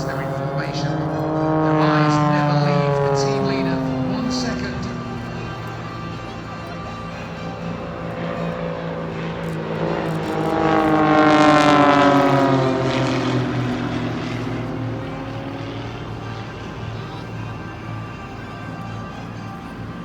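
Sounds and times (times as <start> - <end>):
propeller aircraft flypast: 0.0 - 20.0.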